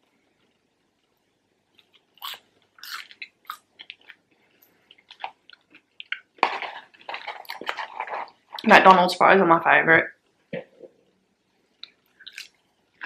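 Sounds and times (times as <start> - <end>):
chewing and soft crunches: 0.3 - 8.7, 11.7 - 13.0.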